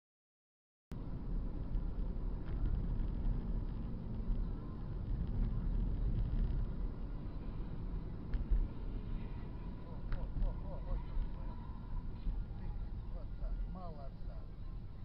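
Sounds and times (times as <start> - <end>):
car road and engine rumble: 0.9 - 15.0.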